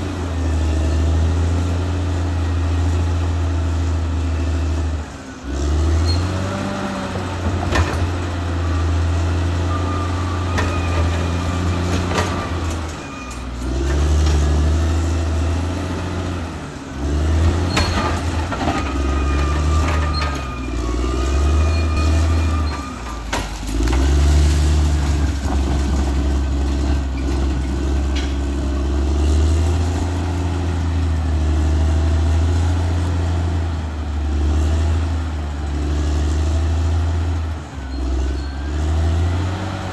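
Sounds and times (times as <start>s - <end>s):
bulldozer diesel engine working: 0.0s - 39.9s
thin wavering squeal: 18.8s - 23.3s.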